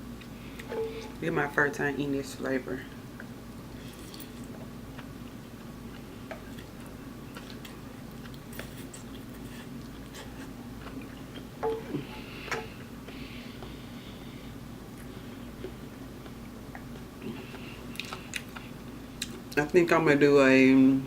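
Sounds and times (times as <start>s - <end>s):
steady low hum: 0.0s - 21.0s
person chewing noodles: 3.8s - 14.2s, 14.9s - 19.4s.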